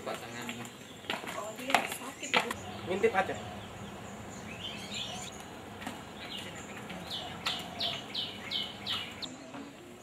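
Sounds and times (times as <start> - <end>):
faint bird chirps: 2.2 - 5.5
bird calling falling notes: 2.6 - 9.7.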